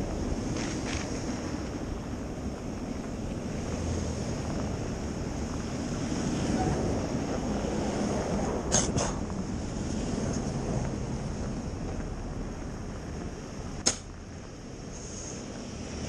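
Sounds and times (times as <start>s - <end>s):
traffic rumbling past: 0.0s - 16.0s
wind buffeting microphone: 0.0s - 16.0s.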